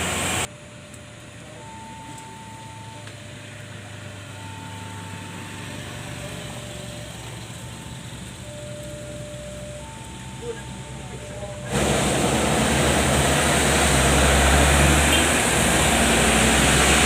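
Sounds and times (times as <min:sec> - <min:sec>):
road traffic rumble: 0:00.0 - 0:17.0
two-note alternating tone: 0:00.5 - 0:17.0.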